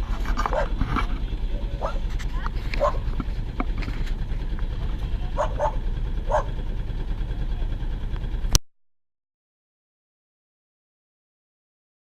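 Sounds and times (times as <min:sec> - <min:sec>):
boat engine low pulsing rumble: 0:00.0 - 0:08.6.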